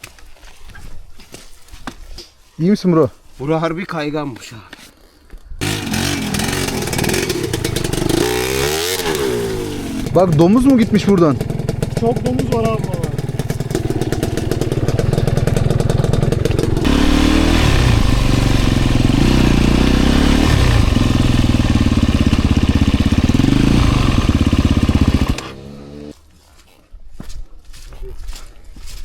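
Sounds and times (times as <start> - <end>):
dirt bike engine revving: 5.6 - 26.2.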